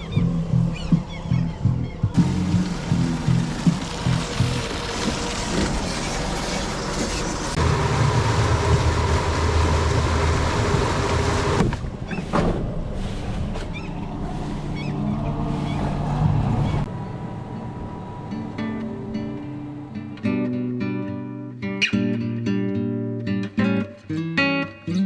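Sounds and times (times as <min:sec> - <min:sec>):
boat motor running: 0:02.2 - 0:11.8.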